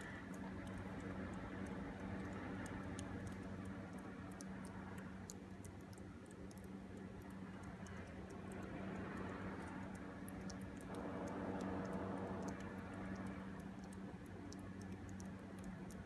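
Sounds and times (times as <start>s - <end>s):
faint high ticks: 0.0s - 16.0s.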